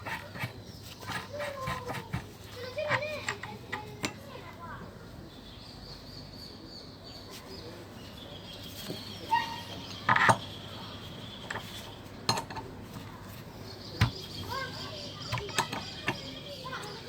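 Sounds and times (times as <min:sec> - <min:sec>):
hard objects clinking and knocking: 0:00.0 - 0:04.2, 0:08.7 - 0:10.7, 0:11.3 - 0:17.0.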